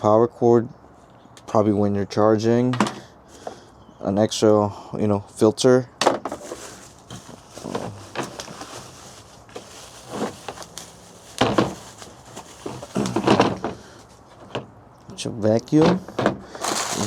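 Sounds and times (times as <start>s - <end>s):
packaging rustling: 6.2s - 14.2s, 16.6s - 17.0s.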